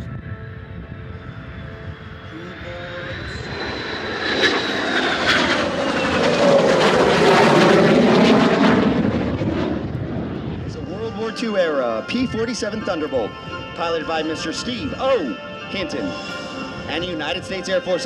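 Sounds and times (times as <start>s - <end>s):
jet engines passing: 0.5s - 18.0s
jet engine crackle: 3.0s - 10.5s.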